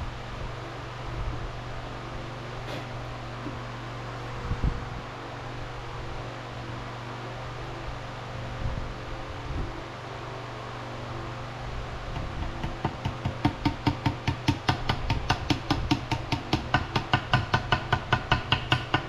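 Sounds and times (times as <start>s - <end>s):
steady hum: 0.0s - 12.7s
small hammer tapping rapidly: 12.4s - 19.0s.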